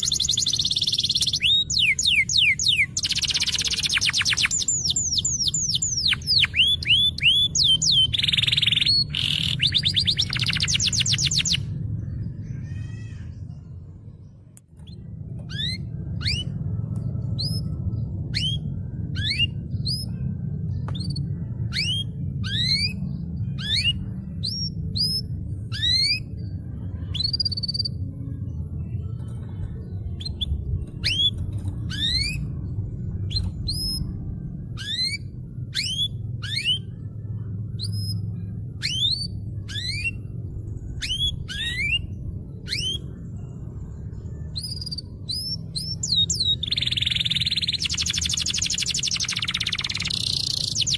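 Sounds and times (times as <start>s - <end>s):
canary singing: 0.0s - 13.6s, 14.8s - 28.1s, 29.7s - 50.9s
steady low rumble: 0.0s - 50.9s.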